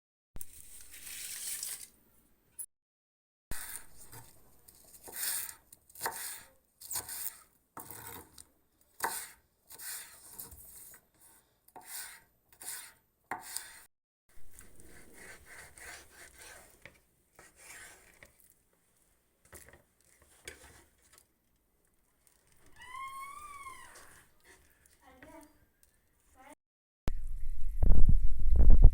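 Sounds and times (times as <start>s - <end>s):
knife scraping board: 0.5s - 1.9s, 3.5s - 8.4s, 9.0s - 18.4s, 19.5s - 21.2s
knife chopping on cutting board: 5.0s - 8.2s, 9.0s - 10.1s.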